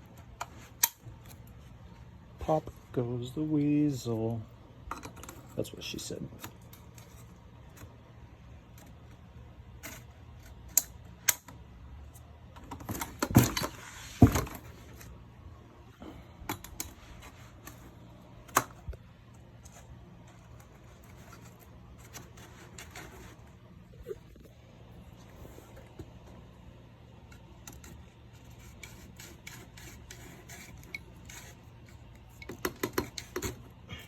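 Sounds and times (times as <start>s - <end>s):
plastic parts clicking and knocking: 4.9s - 5.6s, 12.5s - 15.1s, 16.4s - 19.0s, 27.2s - 33.8s
parts clattering: 12.5s - 15.2s.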